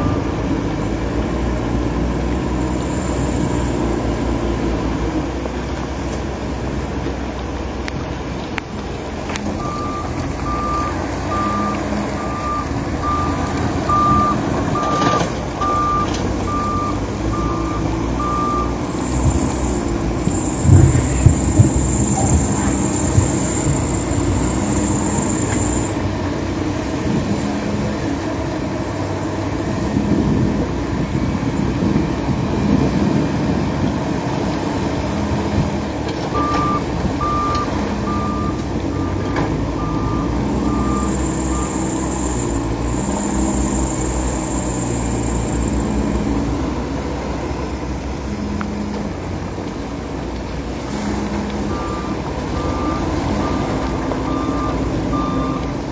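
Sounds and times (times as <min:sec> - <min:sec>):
reversing alarm beeping: 0:00.0 - 0:00.5, 0:02.7 - 0:04.1, 0:09.6 - 0:26.0, 0:36.3 - 0:46.3, 0:51.6 - 0:55.8
heavy machinery diesel engines: 0:00.0 - 0:55.9.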